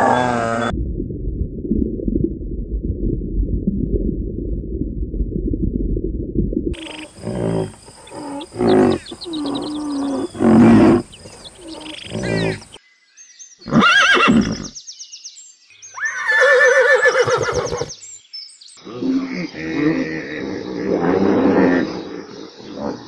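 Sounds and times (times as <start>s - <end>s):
faint high chirping: 6.8s - 12.8s
horse whinnying: 6.8s - 12.8s, 13.7s - 14.7s, 16.0s - 17.9s
pitched gliding animal calls: 6.8s - 12.8s.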